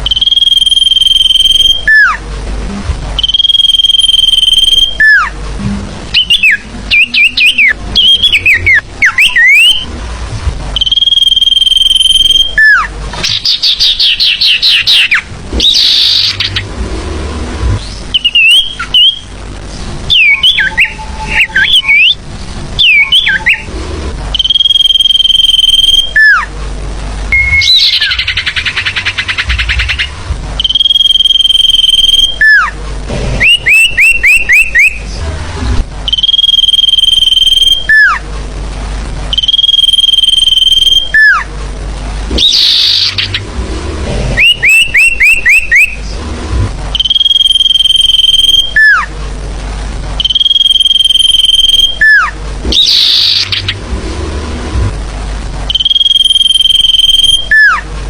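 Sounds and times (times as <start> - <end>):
birds whistling: 0.0 - 2.2, 3.2 - 5.4, 6.1 - 9.9, 10.8 - 16.7, 17.8 - 19.3, 20.1 - 22.2, 22.8 - 23.7, 24.3 - 26.5, 27.3 - 32.8, 33.4 - 35.1, 36.1 - 38.2, 39.3 - 41.4, 42.3 - 43.5, 44.4 - 46.0, 47.0 - 49.1, 50.2 - 53.8, 55.7 - 57.8
buzzy bird trill: 0.0 - 2.2, 3.2 - 5.4, 6.1 - 9.9, 10.8 - 16.8, 17.8 - 19.4, 20.1 - 22.2, 22.8 - 23.7, 24.3 - 26.5, 27.3 - 32.8, 33.4 - 35.1, 36.1 - 38.2, 39.3 - 41.5, 42.3 - 43.6, 44.4 - 46.0, 46.9 - 49.1, 50.2 - 53.9, 55.7 - 57.8
short rising bird notes: 44.3 - 46.0.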